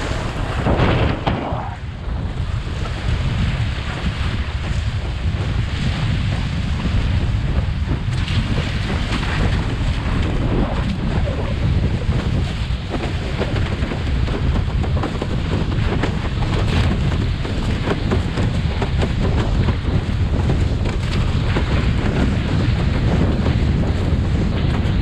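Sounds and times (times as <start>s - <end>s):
water slapping and splashing: 0.0s - 25.0s
wind buffeting microphone: 0.0s - 25.0s.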